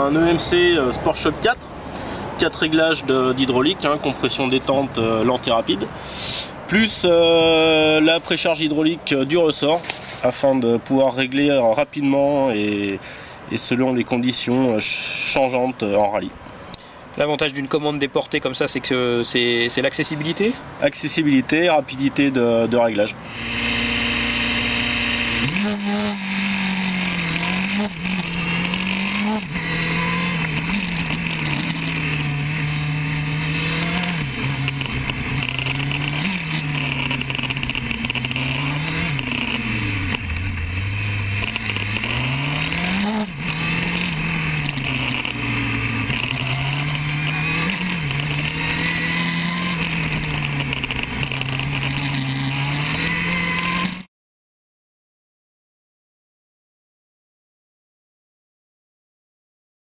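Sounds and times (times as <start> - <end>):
motorcycle engine revving through gears: 23.2 - 54.1.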